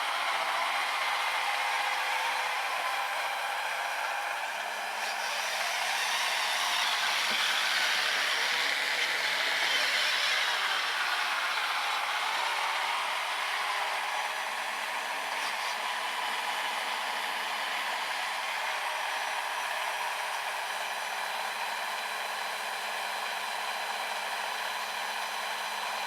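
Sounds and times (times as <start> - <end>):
electric motor whirring: 0.0 - 20.2.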